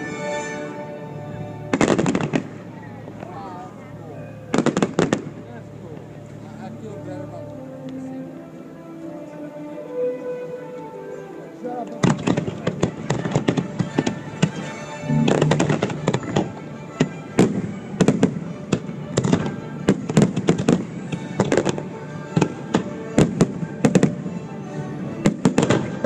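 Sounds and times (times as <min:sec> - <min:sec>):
music: 0:00.0 - 0:26.0
fireworks bangs: 0:15.0 - 0:18.3.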